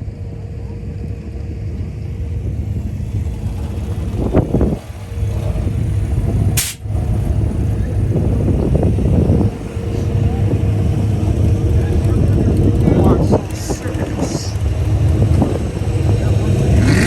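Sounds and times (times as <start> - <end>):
vehicle engine rumbling: 0.0 - 17.0
short hiss: 6.6 - 6.8.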